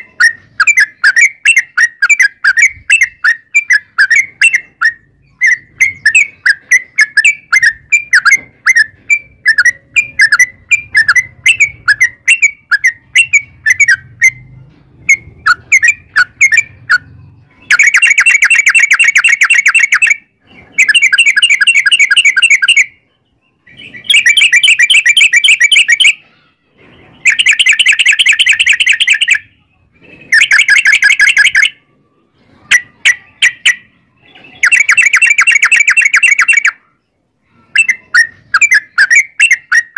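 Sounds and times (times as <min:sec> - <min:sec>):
bulbul singing trilled phrases: 0:15.1 - 0:26.3, 0:33.0 - 0:39.9.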